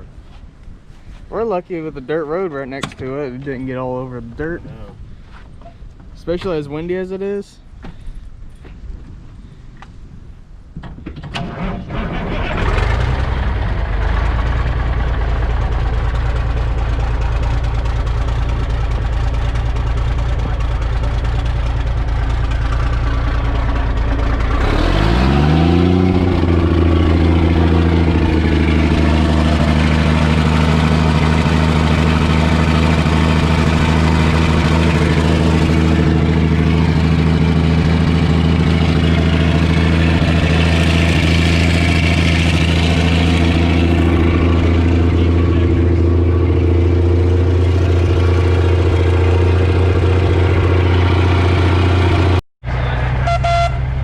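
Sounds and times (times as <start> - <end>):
truck diesel engine running: 11.6 - 54.0.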